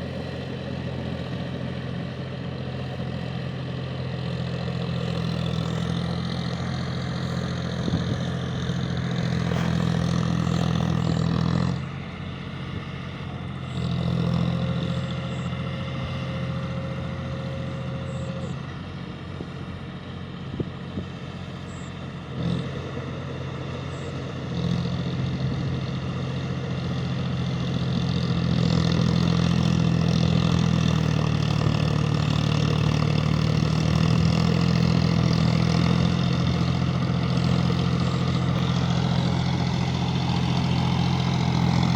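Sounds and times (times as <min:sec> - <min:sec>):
tractor diesel engine revving: 0:00.0 - 0:41.9.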